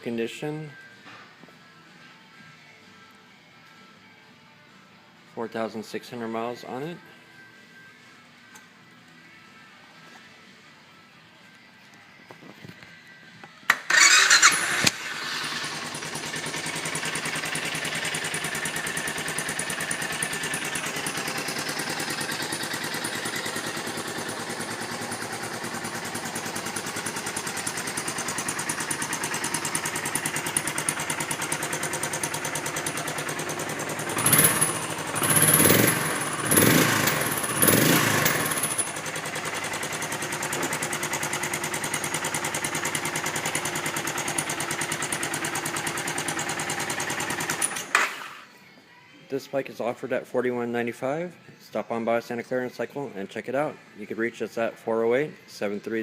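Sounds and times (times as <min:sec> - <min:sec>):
motorcycle engine starting and idling: 0:13.7 - 0:48.5
motorcycle engine revving: 0:13.9 - 0:48.0.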